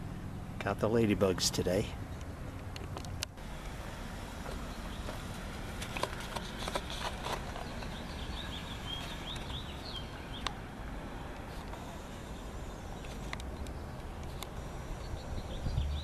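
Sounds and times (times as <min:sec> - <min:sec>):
small bird chirping: 0:07.5 - 0:10.6
sharp clicks: 0:13.0 - 0:15.0.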